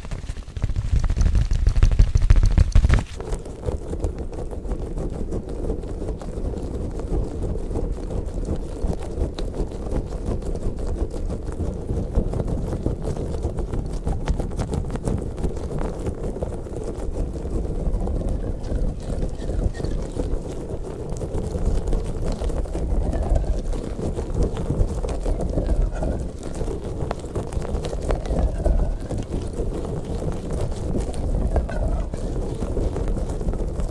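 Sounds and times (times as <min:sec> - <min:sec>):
squishy toy squishing: 0:16.6 - 0:33.9.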